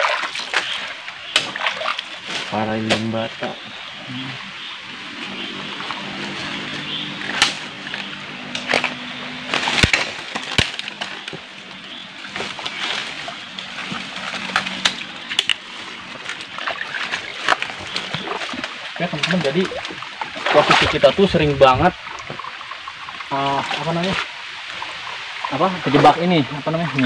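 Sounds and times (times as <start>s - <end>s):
footsteps wading through water: 0.0s - 2.6s, 5.0s - 26.2s.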